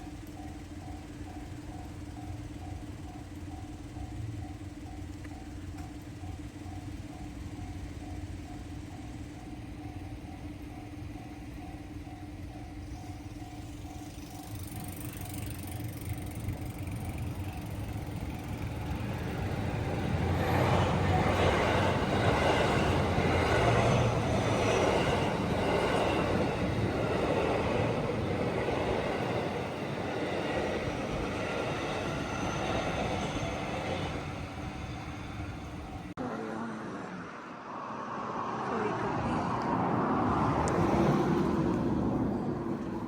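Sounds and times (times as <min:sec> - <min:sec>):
vehicle passing by: 0:36.3 - 0:43.0.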